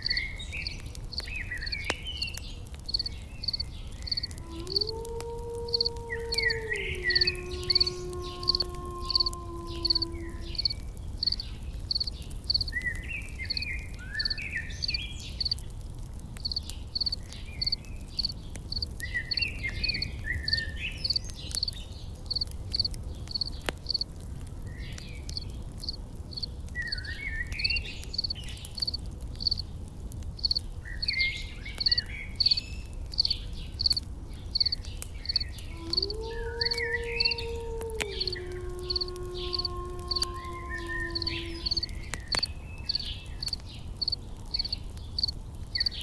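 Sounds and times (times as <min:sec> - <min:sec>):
songbirds twittering: 0:00.0 - 0:04.9, 0:05.7 - 0:24.0, 0:24.8 - 0:29.8, 0:30.4 - 0:46.0
insect chirping: 0:02.9 - 0:04.9, 0:05.7 - 0:12.7, 0:14.2 - 0:15.6, 0:16.4 - 0:18.9, 0:22.3 - 0:24.0, 0:25.3 - 0:26.5, 0:28.2 - 0:29.6, 0:30.4 - 0:30.6, 0:31.8 - 0:32.6, 0:33.2 - 0:46.0.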